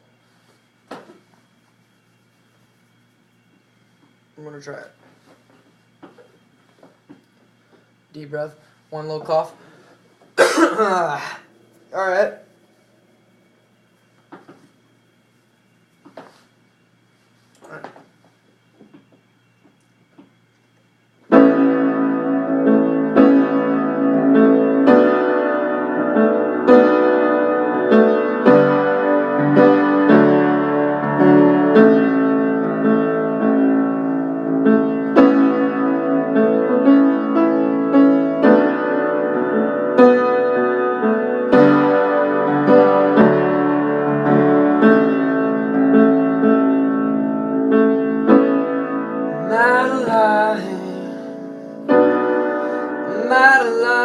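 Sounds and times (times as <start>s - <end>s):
piano chords: 21.2s - 54.0s.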